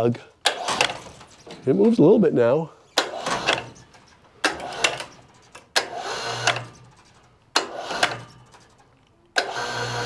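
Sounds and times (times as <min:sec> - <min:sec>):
winch clunk: 0:00.4 - 0:02.0, 0:02.9 - 0:10.0
electric winch humming: 0:04.5 - 0:08.8, 0:09.4 - 0:10.0.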